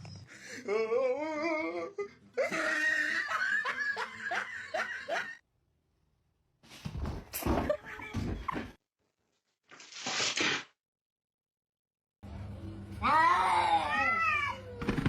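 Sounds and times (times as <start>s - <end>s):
person laughing: 0.7s - 5.4s.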